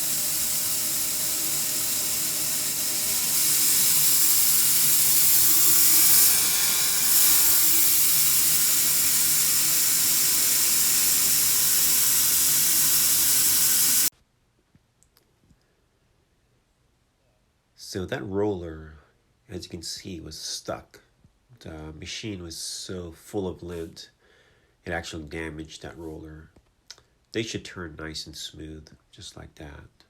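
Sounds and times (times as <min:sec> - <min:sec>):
loud steady hissing rush: 0:00.0 - 0:14.1.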